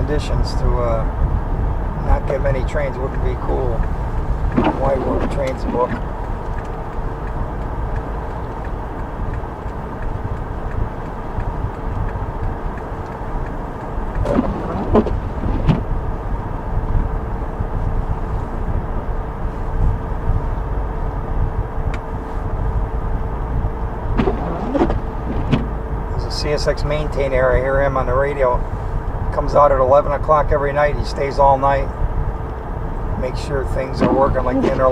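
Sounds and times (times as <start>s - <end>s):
constant hum: 0.0s - 34.9s
vehicle cabin rumble: 0.0s - 34.9s
voice-like sound: 33.9s - 34.9s.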